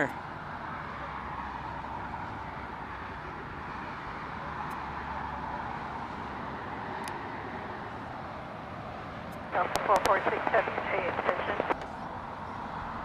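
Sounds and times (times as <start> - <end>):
distant jet engine: 0.0 - 13.0
faint clicks: 9.3 - 12.0.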